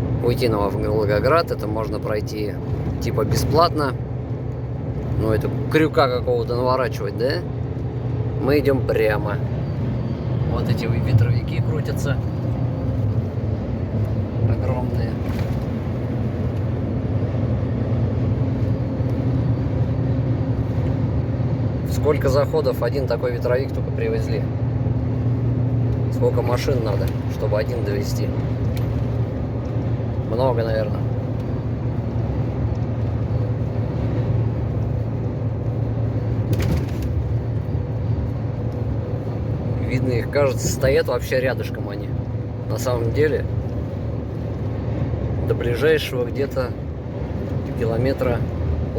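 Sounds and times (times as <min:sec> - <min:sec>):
truck diesel engine droning: 0:00.0 - 0:48.9
tyre and road noise: 0:00.0 - 0:48.9.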